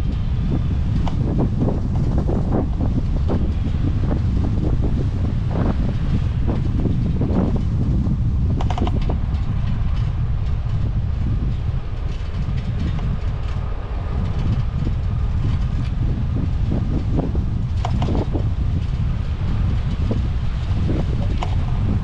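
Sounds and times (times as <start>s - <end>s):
bicycle clicks and rattles: 0.0s - 22.0s
wind buffeting microphone: 0.0s - 22.0s.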